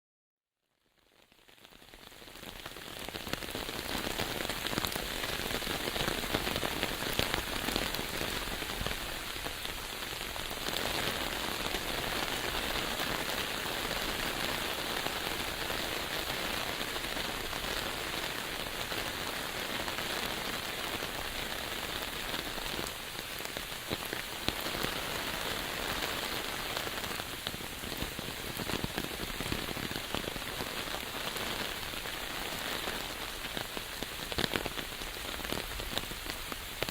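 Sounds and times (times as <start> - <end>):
rain falling: 1.0 - 36.9.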